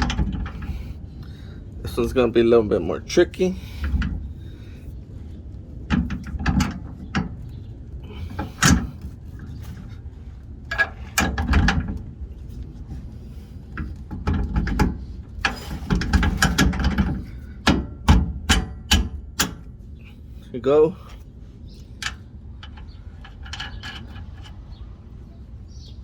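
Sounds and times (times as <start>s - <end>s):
metallic clicks and knocks of hand tools: 14.1s - 19.7s.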